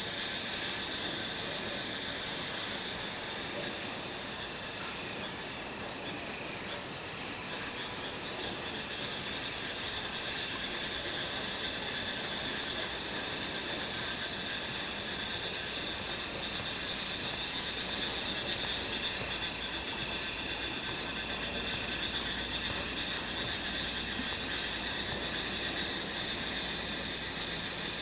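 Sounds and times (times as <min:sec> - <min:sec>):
insects trilling: 0:00.0 - 0:28.0.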